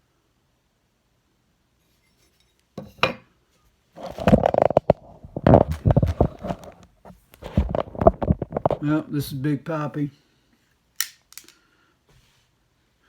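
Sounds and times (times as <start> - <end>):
hard objects clattering: 4.0 - 8.8.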